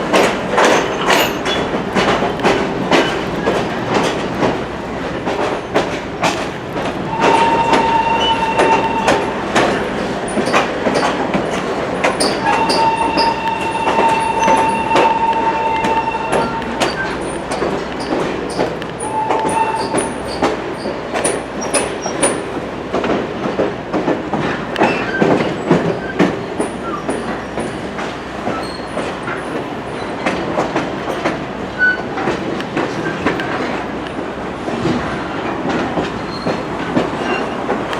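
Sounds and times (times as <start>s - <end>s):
train wheels clacking on rail joints: 0.0s - 37.9s
high steady squealing tone: 7.1s - 11.1s, 12.1s - 18.1s.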